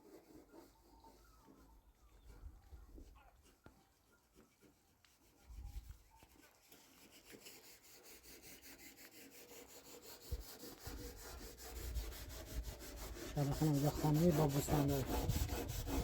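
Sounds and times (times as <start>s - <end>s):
fast rubbing or scraping strokes: 4.3s - 16.0s.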